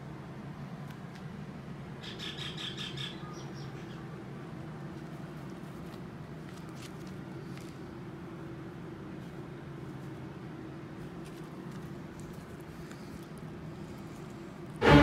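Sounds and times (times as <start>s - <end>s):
low background hum: 0.0s - 15.0s
bird chirping: 2.0s - 4.0s.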